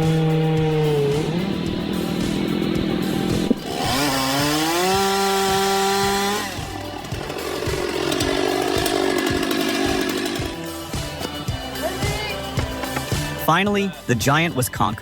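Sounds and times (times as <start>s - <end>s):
chainsaw revving: 0.0s - 11.2s.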